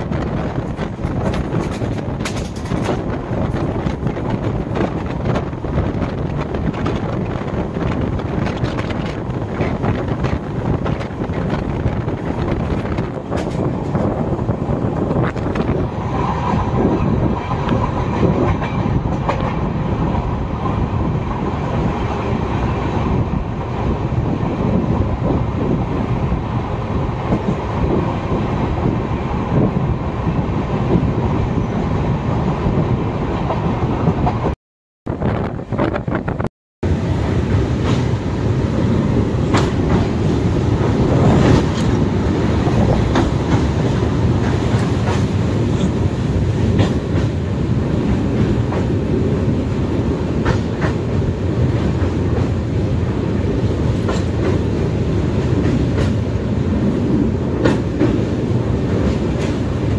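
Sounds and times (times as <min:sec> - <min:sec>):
train rumbling: 0:00.0 - 0:59.9
wheels clattering over rail joints: 0:00.3 - 0:05.5.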